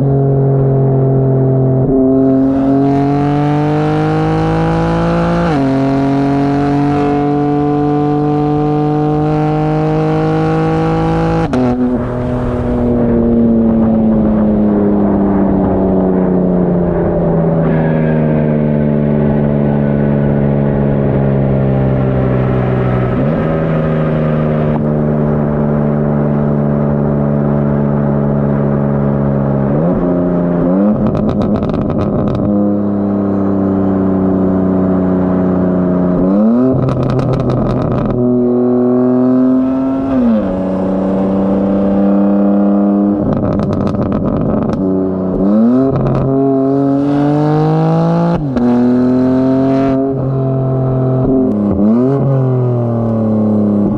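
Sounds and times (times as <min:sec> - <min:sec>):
car engine revving through gears: 0:00.4 - 0:14.7, 0:26.3 - 0:33.4, 0:34.0 - 0:53.9
exhaust crackle: 0:19.1 - 0:33.0, 0:34.0 - 0:46.4.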